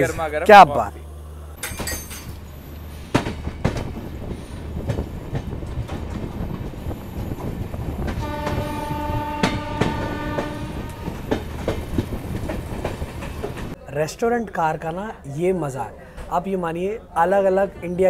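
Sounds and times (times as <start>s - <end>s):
train wheels clattering over joints: 1.6s - 13.8s
train horn long note: 8.2s - 11.4s.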